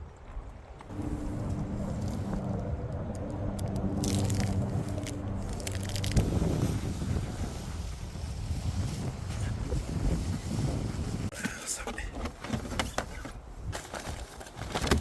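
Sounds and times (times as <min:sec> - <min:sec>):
low engine-like hum: 0:00.9 - 0:08.1.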